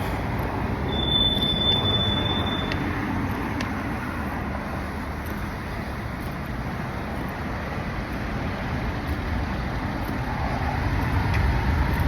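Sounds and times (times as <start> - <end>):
thin high squeal: 0.9 - 2.8.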